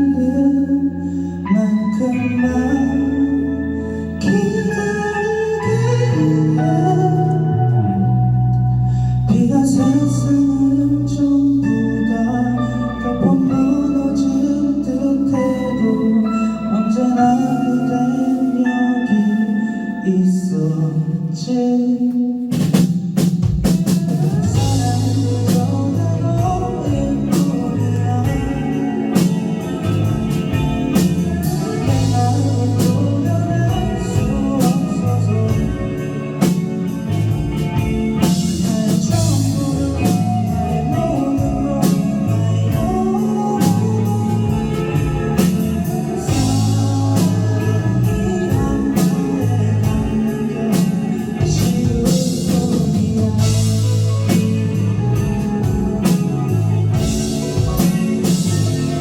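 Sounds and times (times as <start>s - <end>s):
bass guitar: 0.0s - 59.0s
electric guitars: 0.0s - 59.0s
drum kit: 21.3s - 59.0s.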